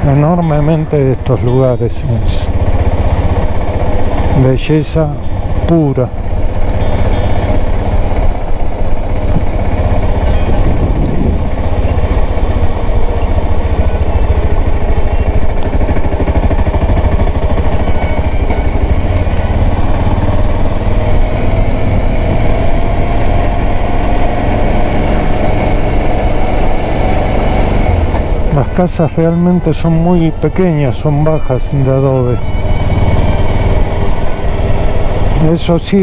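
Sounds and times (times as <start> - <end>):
motorcycle engine running: 0.0 - 36.0
riding wind noise: 0.0 - 36.0.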